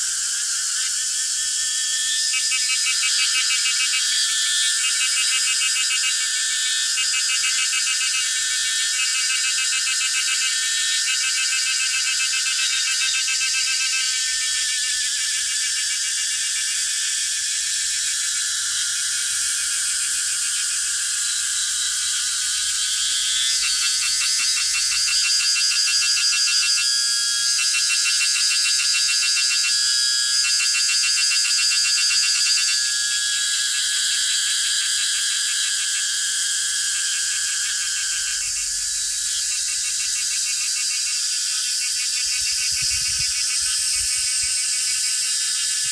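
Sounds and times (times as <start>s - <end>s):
insects buzzing chorus: 0.0s - 45.9s
loud high pulsing insect song: 0.0s - 45.9s.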